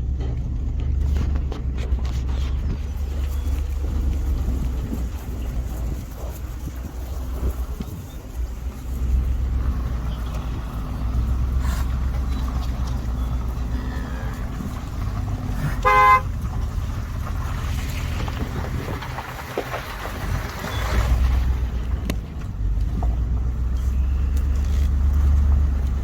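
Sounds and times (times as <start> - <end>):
vehicle engine rumbling: 0.0 - 26.0
vehicle horn honk: 15.7 - 16.4.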